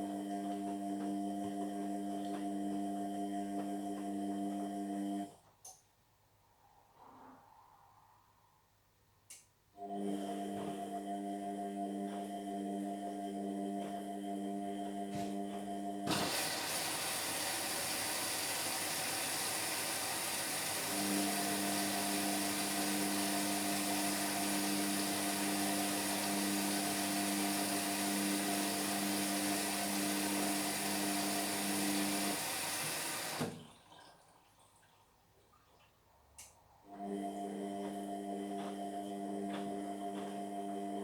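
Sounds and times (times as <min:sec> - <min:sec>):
water flow hissing: 0:16.1 - 0:33.5.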